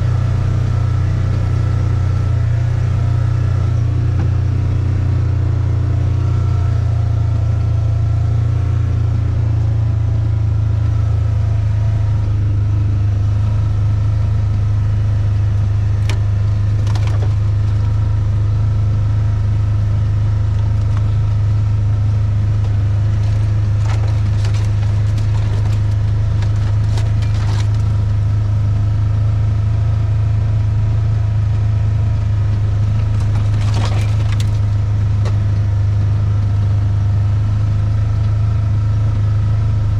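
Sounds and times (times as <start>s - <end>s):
vehicle engine droning: 0.0s - 39.9s
clicks and rattles: 16.0s - 18.0s, 22.6s - 28.1s, 32.9s - 35.4s.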